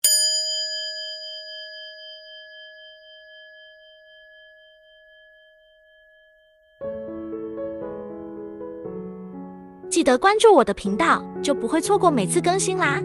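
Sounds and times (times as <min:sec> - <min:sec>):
bell-like chime ringing: 0:00.0 - 0:07.2.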